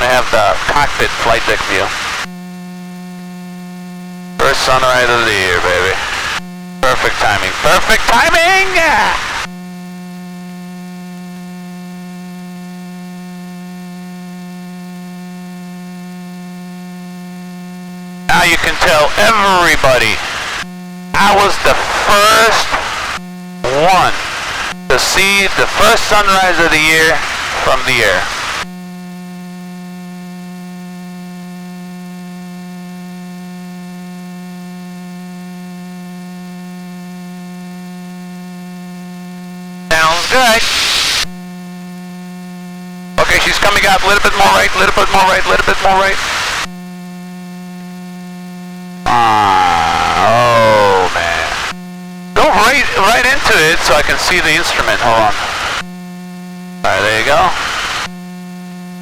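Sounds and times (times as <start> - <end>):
electrical hum: 0.0 - 2.6, 3.8 - 9.6, 18.1 - 28.8, 39.9 - 41.4, 43.2 - 46.8, 49.0 - 58.3.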